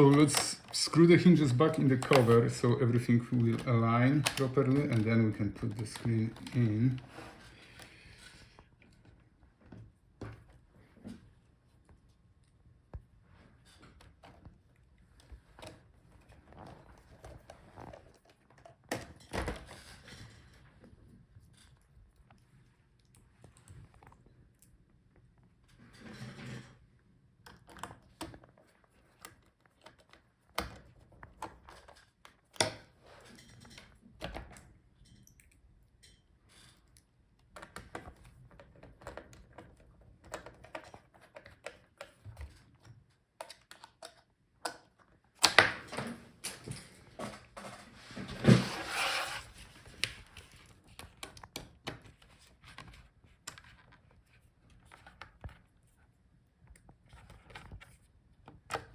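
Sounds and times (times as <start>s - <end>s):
plastic and metal parts clicking: 0.0s - 7.0s, 37.4s - 46.1s
scraping and knocking: 47.1s - 49.8s.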